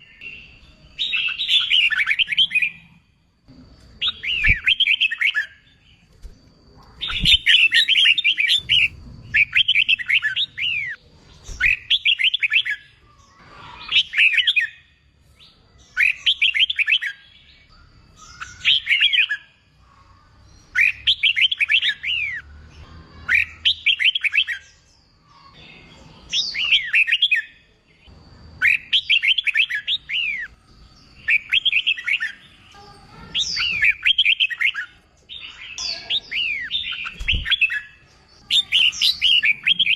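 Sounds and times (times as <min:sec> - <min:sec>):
bird singing whistled phrases: 0:07.0 - 0:11.0, 0:35.7 - 0:39.9.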